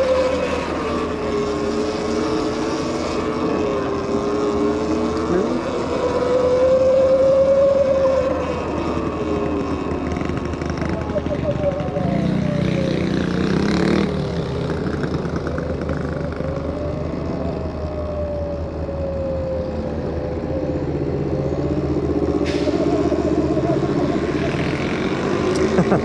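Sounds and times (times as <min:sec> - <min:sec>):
electric bike motor whining: 0:00.0 - 0:11.6
wind and road rumble: 0:00.0 - 0:26.0.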